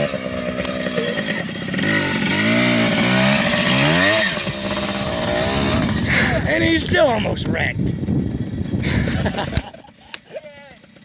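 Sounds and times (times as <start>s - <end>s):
dirt bike engine revving: 0.0s - 7.2s.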